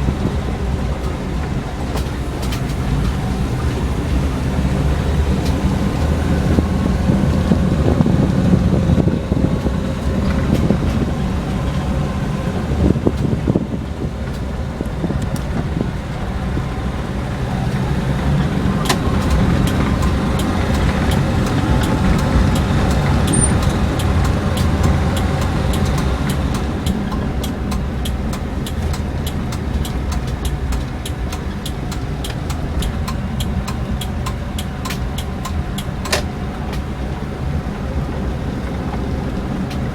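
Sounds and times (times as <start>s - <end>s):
car engine running: 0.0s - 39.9s
road and tyre noise: 0.0s - 39.9s
faint regular ticks: 18.8s - 36.2s.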